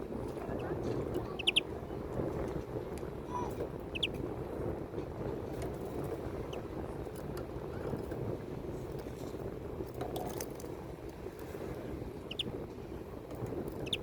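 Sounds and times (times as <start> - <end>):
greenfinch chirp: 1.3 - 1.7, 3.9 - 4.2, 12.3 - 12.5, 13.8 - 14.0.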